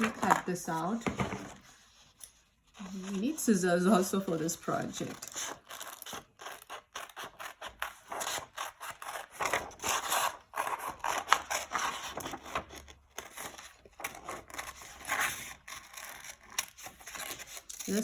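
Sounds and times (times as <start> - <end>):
scissors snipping paper: 5.0 - 18.0.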